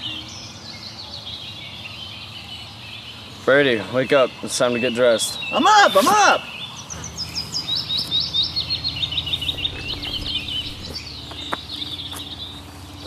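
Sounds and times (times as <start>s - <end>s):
songbirds chirping: 0.0s - 13.0s
low steady hum: 8.4s - 13.0s.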